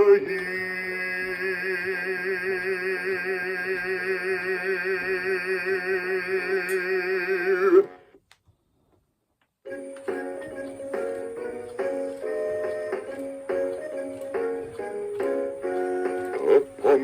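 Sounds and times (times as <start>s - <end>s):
backing music: 9.7s - 17.0s.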